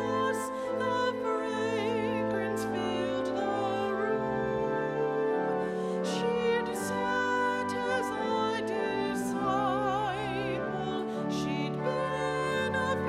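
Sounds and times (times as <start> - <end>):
solo voice singing with vibrato: 0.0 - 13.0
sustained accompaniment chords: 0.0 - 13.0.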